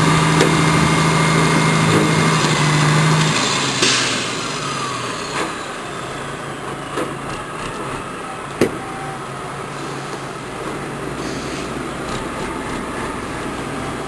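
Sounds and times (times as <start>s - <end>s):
truck engine running: 0.0s - 14.0s
short hiss: 11.2s - 11.8s.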